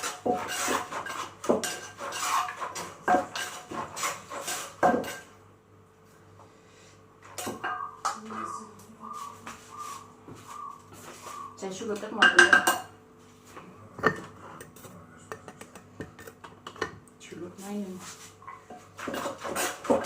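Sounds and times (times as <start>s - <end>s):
pestle knocking in mortar: 14.0s - 17.0s, 18.9s - 20.0s.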